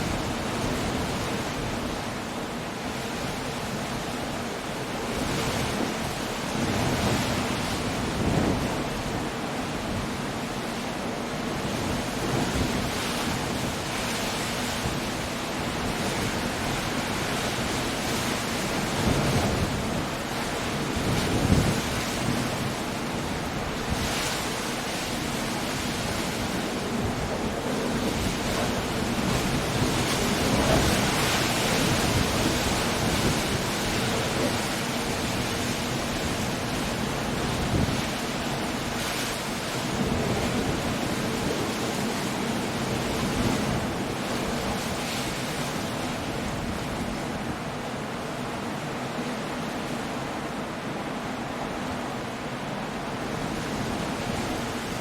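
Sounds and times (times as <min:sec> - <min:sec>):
rain: 0:00.0 - 0:55.0
waves breaking against cliffs: 0:00.0 - 0:55.0
wind: 0:00.0 - 0:55.0.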